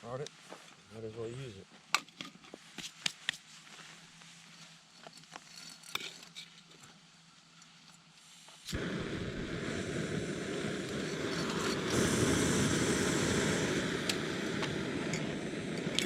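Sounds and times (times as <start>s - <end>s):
gas burner rushing: 8.7s - 16.0s
gas stove igniter click: 10.8s - 16.0s.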